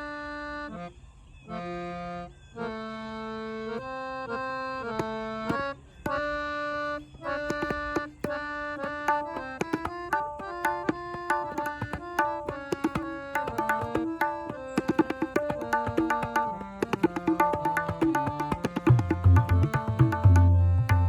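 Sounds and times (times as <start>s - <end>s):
reed organ melody: 0.0s - 0.9s, 1.5s - 21.0s
tabla strokes: 7.2s - 21.0s.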